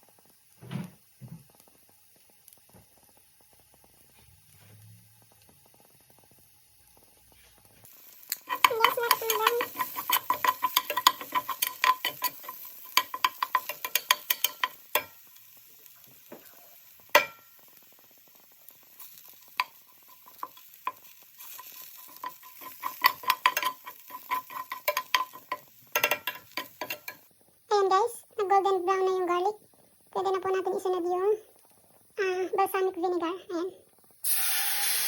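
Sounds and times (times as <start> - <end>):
garlic sizzling in oil: 0.0 - 35.0
utensil stirring against pan: 5.4 - 27.3.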